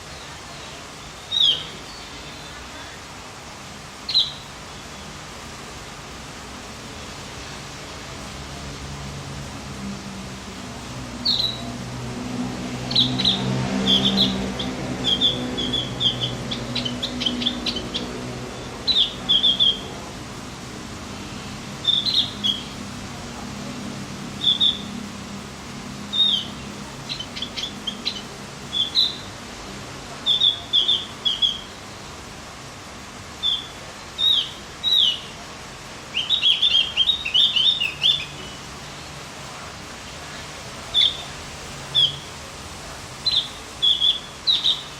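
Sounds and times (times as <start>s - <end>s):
songbird chirping: 0.0s - 2.8s, 4.1s - 4.5s, 11.1s - 20.1s, 21.8s - 23.1s, 24.3s - 25.0s, 26.1s - 29.4s, 30.2s - 31.8s, 33.4s - 35.5s, 36.1s - 39.1s, 40.9s - 42.4s, 43.2s - 44.9s.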